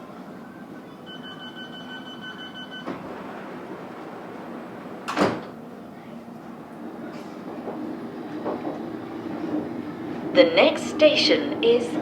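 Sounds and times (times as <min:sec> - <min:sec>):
train low hum: 0:00.0 - 0:12.0
high warning beeps: 0:01.0 - 0:03.0
sliding doors shutting knock: 0:02.2 - 0:05.7, 0:07.1 - 0:10.3.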